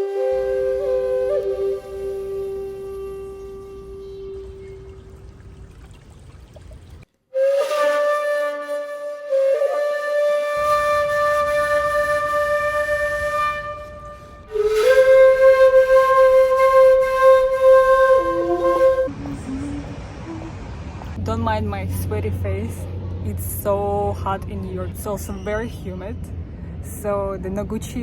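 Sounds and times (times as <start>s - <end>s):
slow flute melody: 0.0s - 5.3s, 7.3s - 20.6s.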